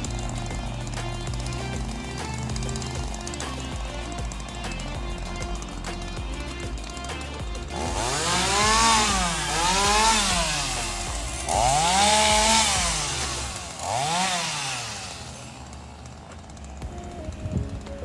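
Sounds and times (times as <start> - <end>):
background music: 0.0 - 18.0
chainsaw revving: 0.0 - 18.0.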